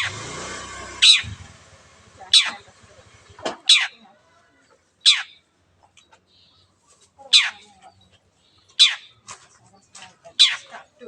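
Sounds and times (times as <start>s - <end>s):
shrike harsh calls: 0.0s - 1.4s, 2.3s - 2.8s, 5.0s - 5.5s.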